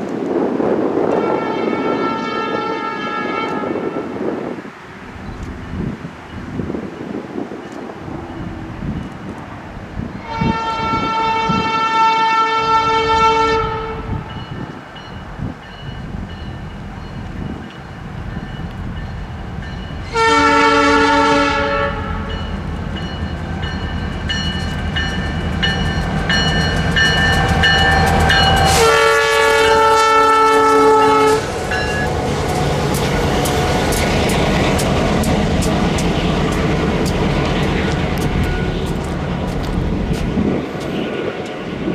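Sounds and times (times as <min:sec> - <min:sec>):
locomotive air horn blasts: 0:01.0 - 0:04.5, 0:10.2 - 0:14.4, 0:20.0 - 0:22.5, 0:25.8 - 0:32.5
locomotives rumbling past: 0:13.6 - 0:41.9.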